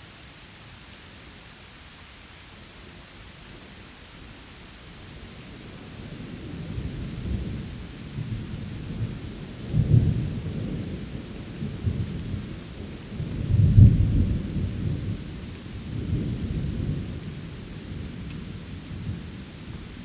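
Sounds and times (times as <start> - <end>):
steady rain: 0.0 - 20.0
thunder rumbling: 6.3 - 20.0.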